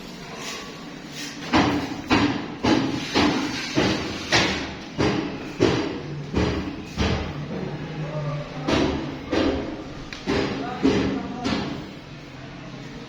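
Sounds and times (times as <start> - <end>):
heavy knocks: 1.5 - 7.7, 8.6 - 11.8.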